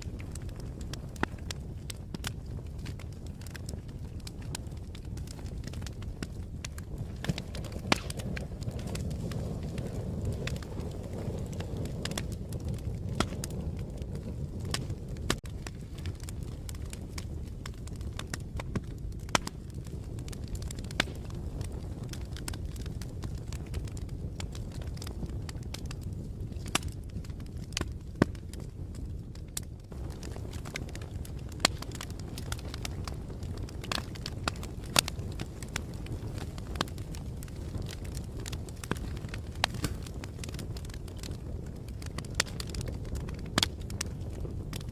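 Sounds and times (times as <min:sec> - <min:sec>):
fire crackling: 0:00.0 - 0:44.9.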